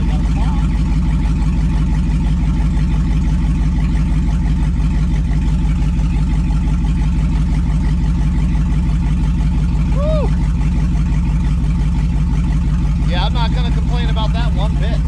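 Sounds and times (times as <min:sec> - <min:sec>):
pickup engine idling: 0:00.0 - 0:15.0.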